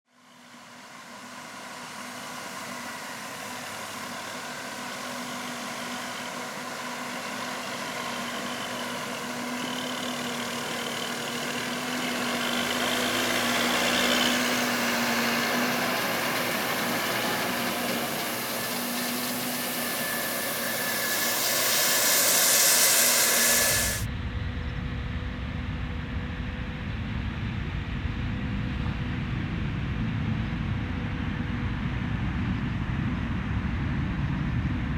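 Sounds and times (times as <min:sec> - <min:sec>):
farm machinery engines with hiss: 0:00.2 - 0:24.1.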